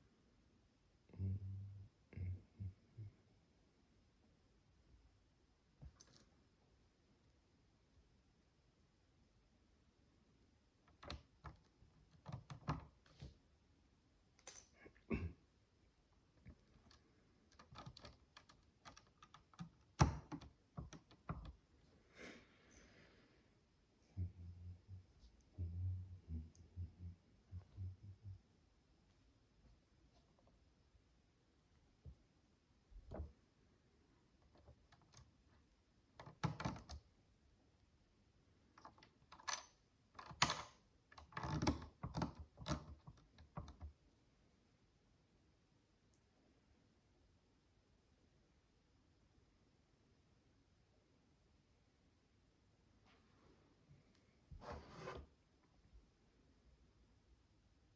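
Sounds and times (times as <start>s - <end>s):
soft rustle: 52.9s - 55.4s.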